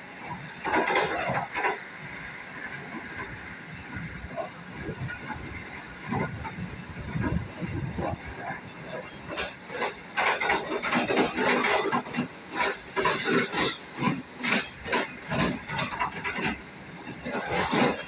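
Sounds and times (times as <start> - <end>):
train wheels on rail: 0.0 - 18.0
wind rushing: 3.0 - 8.6.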